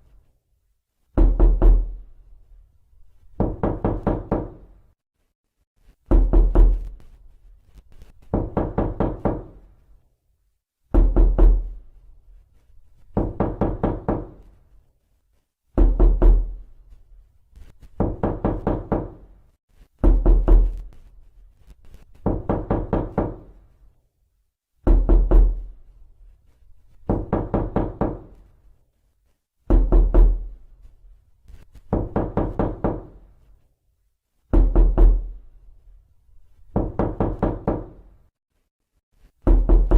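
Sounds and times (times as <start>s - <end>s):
knocking on a door: 1.2s - 2.0s, 3.4s - 4.7s, 6.1s - 6.9s, 8.3s - 9.6s, 10.9s - 11.8s, 13.1s - 14.5s, 15.8s - 16.6s, 18.0s - 19.3s, 20.0s - 20.8s, 22.2s - 23.6s, 24.8s - 25.7s, 27.0s - 28.4s, 29.7s - 30.5s, 31.9s - 33.2s, 34.5s - 35.4s, 36.7s - 38.1s, 39.4s - 39.9s.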